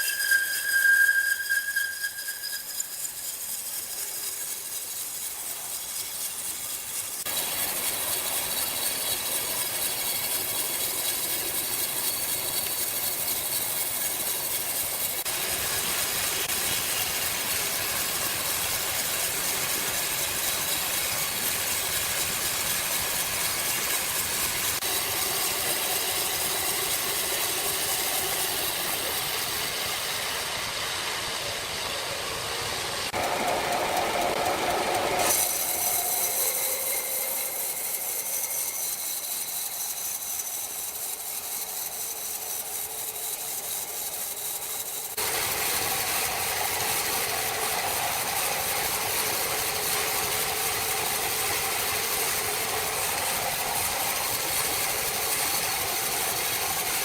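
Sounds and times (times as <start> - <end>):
faint high whine: 0.0 - 5.6
sawmill machinery running: 0.0 - 57.0.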